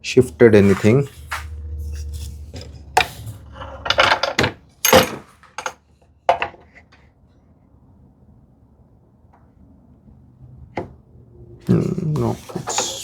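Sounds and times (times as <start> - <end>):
low scraping drone: 0.0 - 4.8
wood and metal knocks: 2.6 - 6.7.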